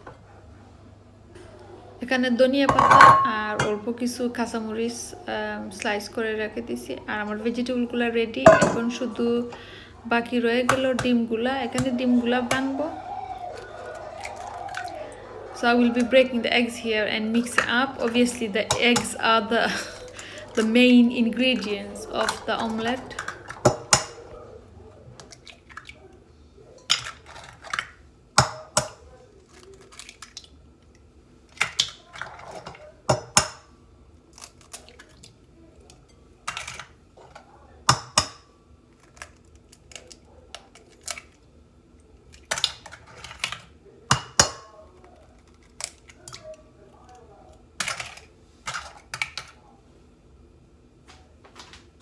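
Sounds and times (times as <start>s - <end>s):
eggs cracking on bowl rim: 10.7s - 16.4s, 17.3s - 24.4s, 26.8s - 33.7s, 34.3s - 41.4s, 42.2s - 46.6s.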